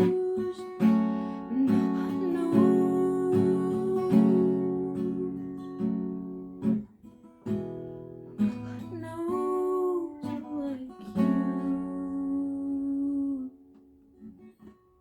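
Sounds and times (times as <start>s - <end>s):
acoustic guitar strumming chords: 0.0s - 10.4s.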